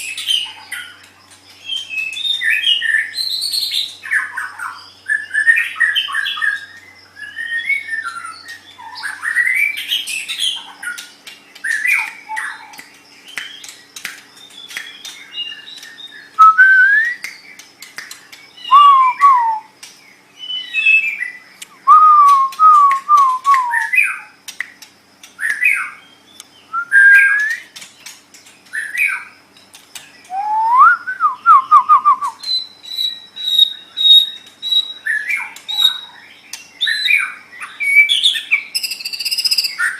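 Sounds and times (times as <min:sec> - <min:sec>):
bird singing whistled phrases: 0:01.6 - 0:10.6, 0:14.4 - 0:17.6, 0:18.6 - 0:19.8, 0:20.4 - 0:24.3, 0:25.4 - 0:27.8, 0:30.2 - 0:36.2, 0:36.8 - 0:39.9
sharp bird clicks: 0:08.4 - 0:20.2, 0:20.8 - 0:26.6, 0:27.2 - 0:30.4, 0:32.4 - 0:39.9
long high bird whistle: 0:16.4 - 0:17.3, 0:18.6 - 0:19.7, 0:21.8 - 0:24.2, 0:26.7 - 0:27.7, 0:30.3 - 0:35.2.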